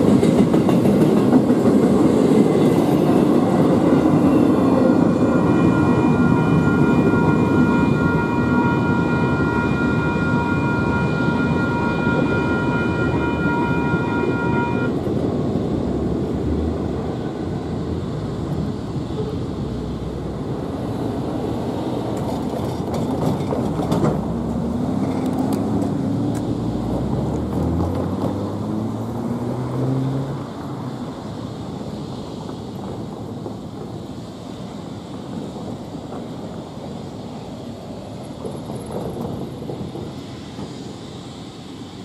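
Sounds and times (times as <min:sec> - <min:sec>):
train rumbling past: 0:00.0 - 0:42.0
locomotive horn chord: 0:05.2 - 0:15.0.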